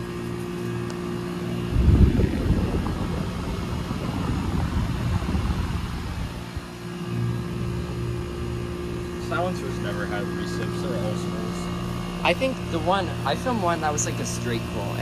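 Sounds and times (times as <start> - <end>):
heat pump humming: 0.0 - 15.0
wind buffeting microphone: 1.5 - 7.5.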